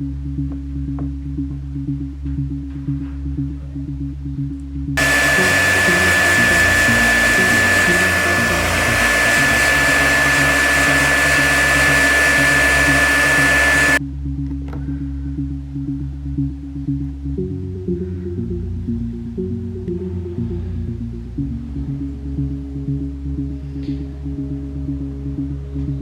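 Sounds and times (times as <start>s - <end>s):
background music: 0.0s - 26.0s
heat gun blowing: 5.0s - 14.0s.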